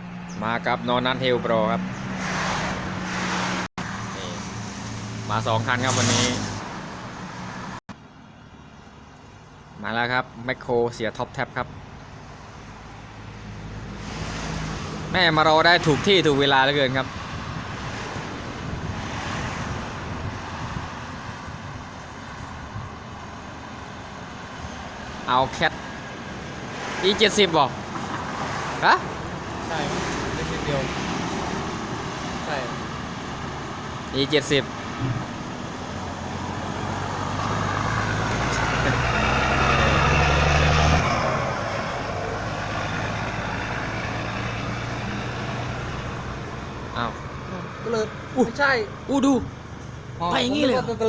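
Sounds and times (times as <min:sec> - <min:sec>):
truck engine rumble: 0:00.0 - 0:51.0
wind noise on microphone: 0:17.0 - 0:23.2
diesel truck engine under load: 0:27.7 - 0:48.3.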